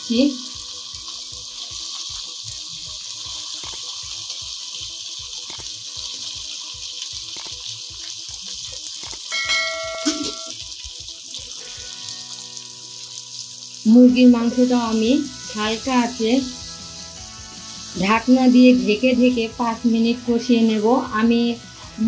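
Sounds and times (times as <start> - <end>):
chicken sizzling in hot oil: 0.0 - 22.0
brief ringing tone: 9.3 - 10.6.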